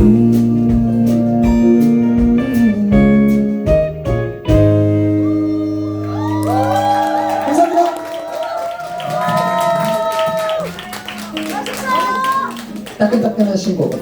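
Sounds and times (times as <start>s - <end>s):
live rock band chords: 0.0s - 7.3s
audience clapping and cheering: 6.0s - 14.0s.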